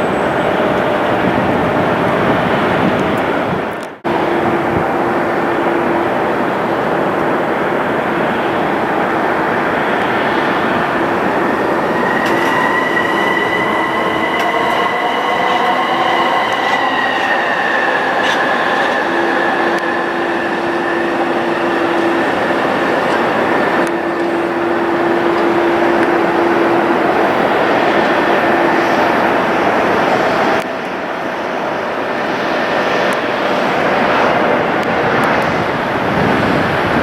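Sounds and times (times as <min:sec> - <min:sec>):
high engine whine: 0:00.0 - 0:37.0
jet engines roaring: 0:00.0 - 0:37.0.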